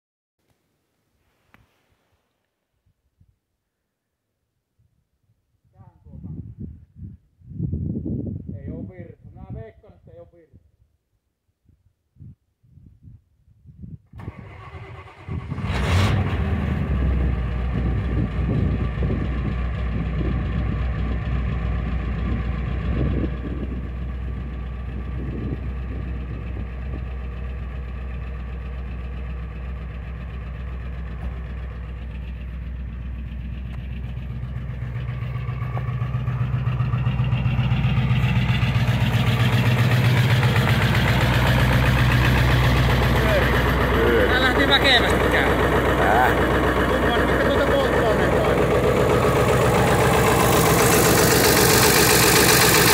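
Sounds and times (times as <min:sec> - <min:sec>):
diesel engine starting and idling: 0:14.2 - 0:52.9.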